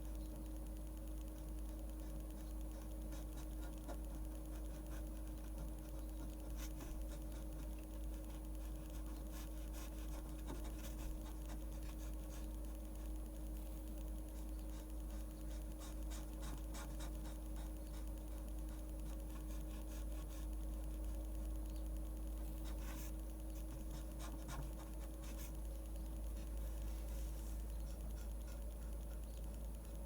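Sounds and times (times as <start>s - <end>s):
steady low hum: 0.0s - 30.0s
pen scratching on paper: 1.4s - 13.2s, 14.3s - 20.6s, 22.4s - 25.6s.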